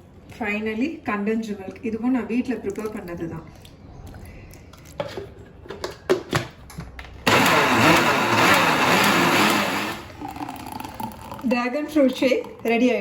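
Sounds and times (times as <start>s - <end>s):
electric blender running: 7.2s - 11.5s.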